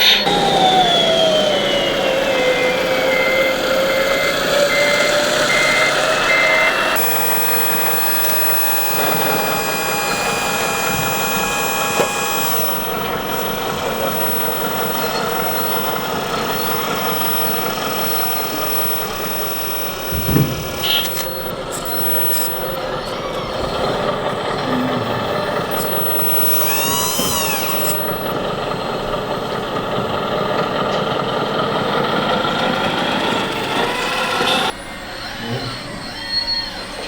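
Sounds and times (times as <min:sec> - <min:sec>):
reversing beeper: 0:00.0 - 0:31.0, 0:31.8 - 0:37.0
model motor whine: 0:00.0 - 0:37.0.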